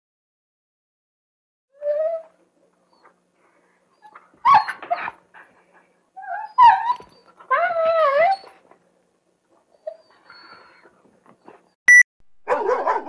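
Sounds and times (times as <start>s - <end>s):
dog whining: 1.7s - 3.2s, 4.0s - 5.5s, 6.2s - 8.7s, 9.7s - 11.8s
dog yelping: 4.0s - 5.2s, 6.2s - 8.6s, 12.5s - 13.0s.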